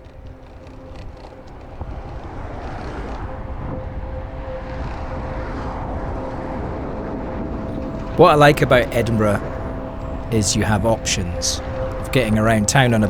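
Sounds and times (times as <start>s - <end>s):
wind rushing over microphone: 0.0s - 8.6s
bicycle road noise: 0.0s - 13.0s
thin steady hum: 3.2s - 13.0s.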